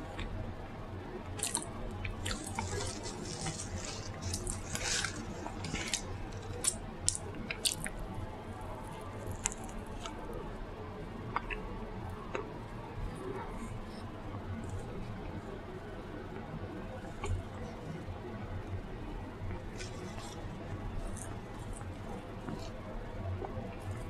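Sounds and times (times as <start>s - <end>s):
wet chewing: 1.4s - 8.0s, 9.2s - 10.2s, 11.3s - 11.7s, 19.5s - 22.8s.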